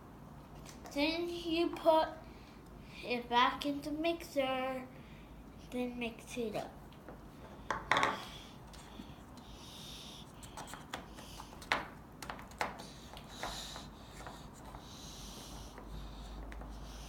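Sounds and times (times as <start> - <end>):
soft breathing: 4.9 - 5.7, 7.3 - 11.8, 12.8 - 17.0.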